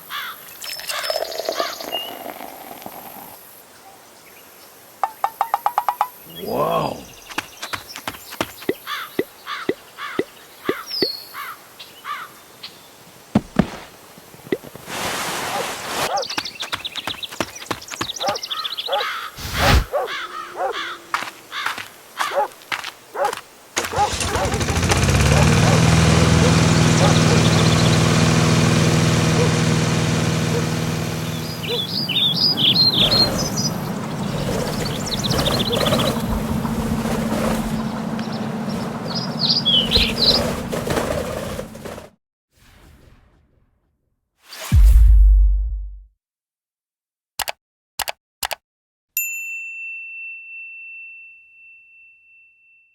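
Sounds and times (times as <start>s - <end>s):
outdoor background noise: 0.0s - 42.2s
bird chirping: 0.2s - 2.4s, 4.2s - 13.0s, 16.1s - 22.5s, 26.5s - 28.3s, 31.2s - 36.8s, 37.7s - 40.5s
low engine hum: 24.4s - 42.1s.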